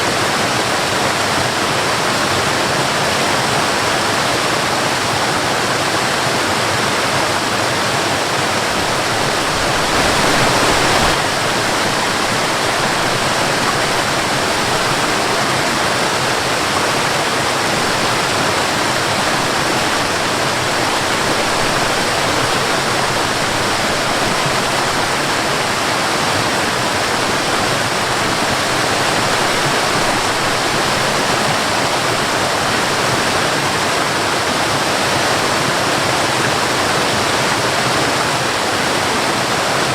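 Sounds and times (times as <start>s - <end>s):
waterfall splashing: 0.0s - 39.9s.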